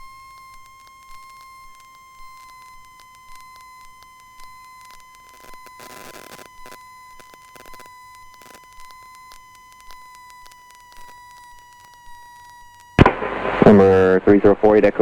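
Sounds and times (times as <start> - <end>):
steady electronic whine: 0.0 - 15.0
regular radio clicks: 0.4 - 15.0
burst of radio static: 5.3 - 8.7, 13.0 - 15.0.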